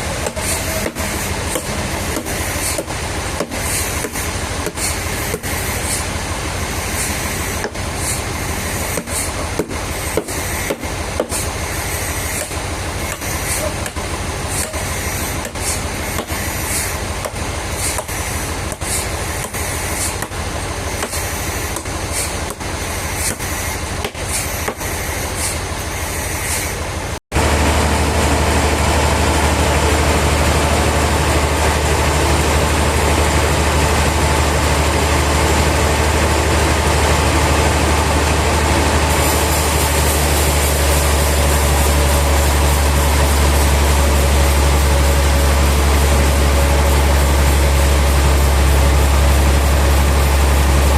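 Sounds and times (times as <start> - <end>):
low engine drone: 27.3 - 50.9
machinery clattering and knocking: 27.4 - 50.9.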